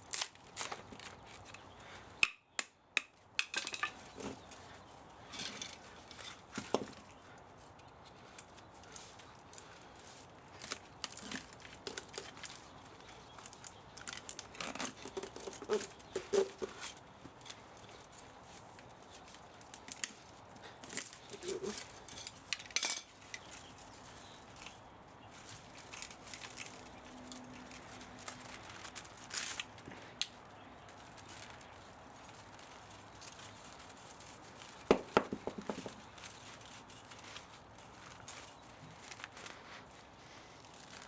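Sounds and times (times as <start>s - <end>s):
metal parts clinking and scraping: 5.3s - 6.6s, 20.8s - 23.8s.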